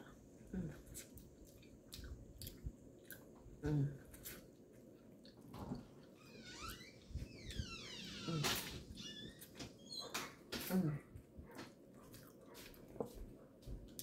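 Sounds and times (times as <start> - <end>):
chewing corn on the cob: 0.7 - 6.1.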